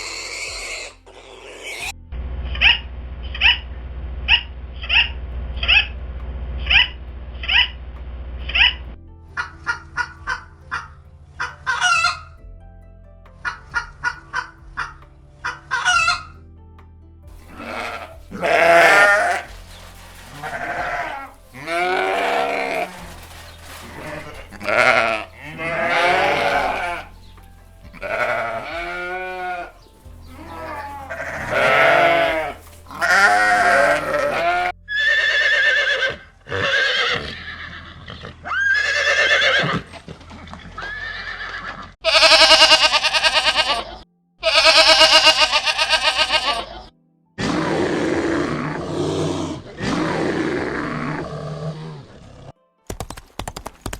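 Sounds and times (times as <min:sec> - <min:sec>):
farm animals calling: 0:00.0 - 0:02.0, 0:09.4 - 0:12.3, 0:13.4 - 0:16.3, 0:17.3 - 0:52.2.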